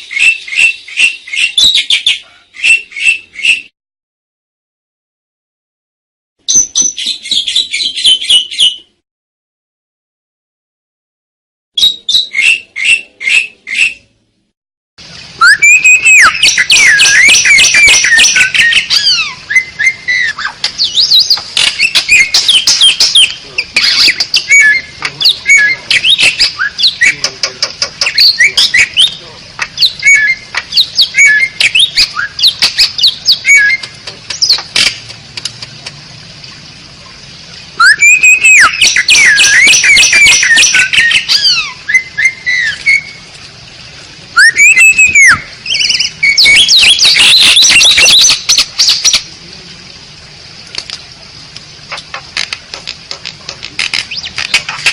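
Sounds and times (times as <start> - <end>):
starling harsh calls: 0.0 - 3.7, 15.4 - 34.9, 37.8 - 43.1, 44.4 - 49.3
starling chattering song: 15.4 - 35.6, 37.8 - 43.2, 44.4 - 49.4, 51.8 - 54.9.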